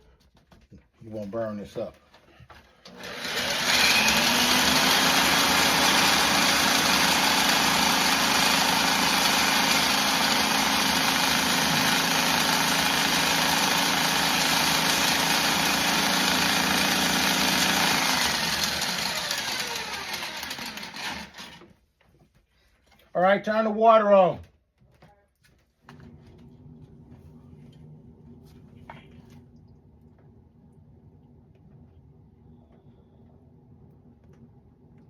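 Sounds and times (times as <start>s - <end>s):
power drill spinning drain snake: 2.6s - 21.8s.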